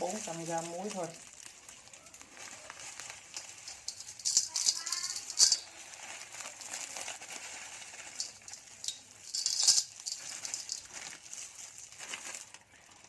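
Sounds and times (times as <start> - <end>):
snail shells clattering with salt: 0.0 - 12.7
shells scraping container: 3.2 - 6.3, 7.8 - 11.5.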